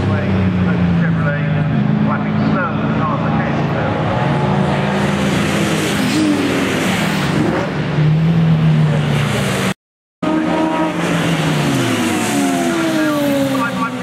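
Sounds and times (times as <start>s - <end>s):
racing car engines running hard: 0.0s - 14.0s.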